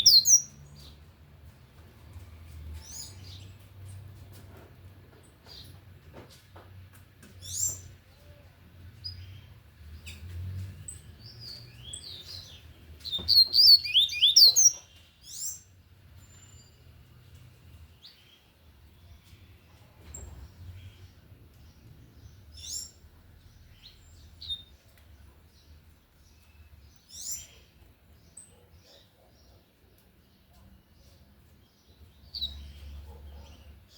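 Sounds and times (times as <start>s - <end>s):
bird chirping: 0.0s - 1.0s, 7.4s - 8.4s, 9.0s - 33.9s
rapid bird song phrase: 0.0s - 1.0s, 10.9s - 16.8s.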